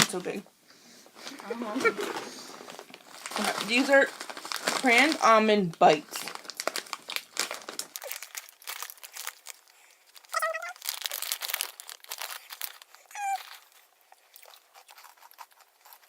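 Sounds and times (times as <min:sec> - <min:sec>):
crunching crisp snacks: 0:01.2 - 0:05.4, 0:06.0 - 0:16.0
plastic packet crinkling: 0:01.2 - 0:16.0
short high vocal sounds: 0:10.3 - 0:10.8, 0:13.1 - 0:13.5.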